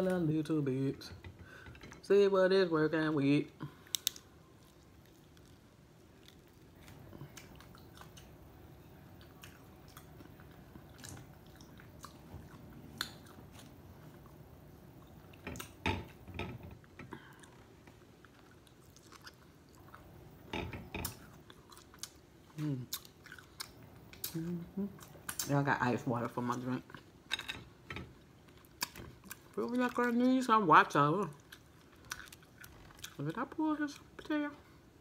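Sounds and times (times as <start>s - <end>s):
chewing and mouth sounds: 3.7s - 15.8s, 17.2s - 20.3s, 21.0s - 25.5s, 28.3s - 30.4s, 31.1s - 34.3s
shell clicking as peeled: 3.9s - 4.2s.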